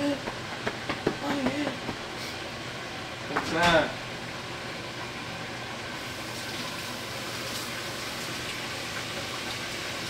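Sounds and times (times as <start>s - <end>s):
food sizzling on a stove: 2.0s - 10.0s.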